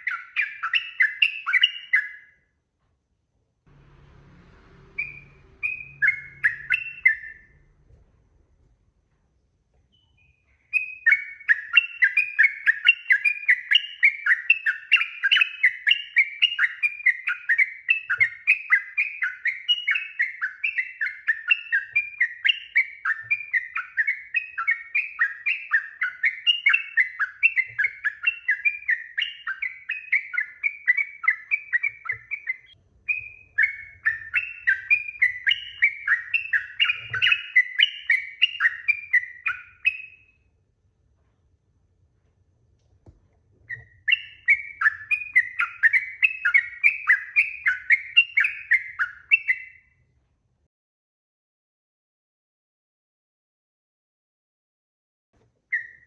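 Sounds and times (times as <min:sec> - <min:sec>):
bird singing chattering notes: 0:05.0 - 0:07.6, 0:09.9 - 0:40.3, 0:43.7 - 0:49.8.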